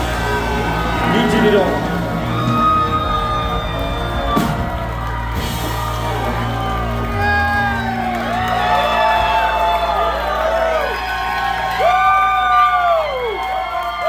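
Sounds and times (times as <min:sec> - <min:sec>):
live rock band playing: 0:00.0 - 0:09.8
crowd whooping and shouting: 0:00.0 - 0:14.0.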